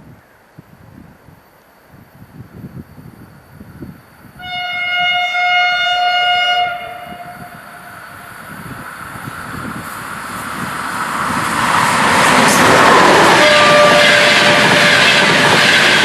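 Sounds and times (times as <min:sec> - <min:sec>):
low train rumble: 0:00.0 - 0:16.0
electric train horn blast: 0:04.4 - 0:08.3, 0:12.5 - 0:15.9.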